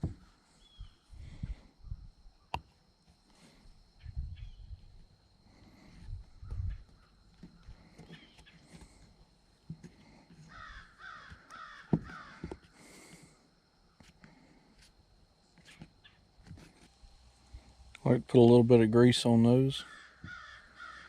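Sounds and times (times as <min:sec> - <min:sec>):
animal harsh calls: 0:19.8 - 0:21.0.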